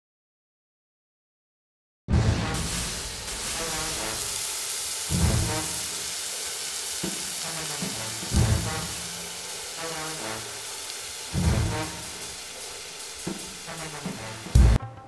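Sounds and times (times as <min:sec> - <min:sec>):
theme music: 0:02.1 - 0:06.2, 0:07.3 - 0:15.0
food frying in hot oil: 0:02.6 - 0:14.8.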